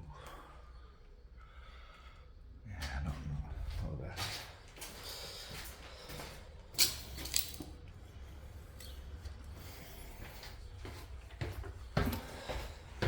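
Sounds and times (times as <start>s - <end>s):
footsteps on gritty floor: 10.2s - 13.0s.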